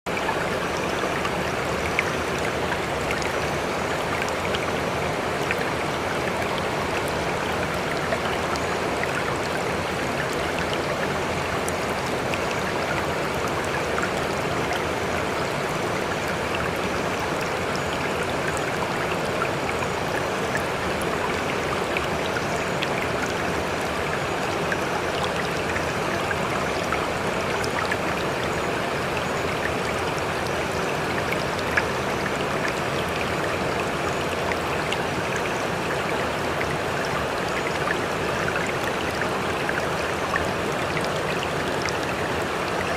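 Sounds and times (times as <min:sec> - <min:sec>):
stream flowing: 0:00.1 - 0:42.9.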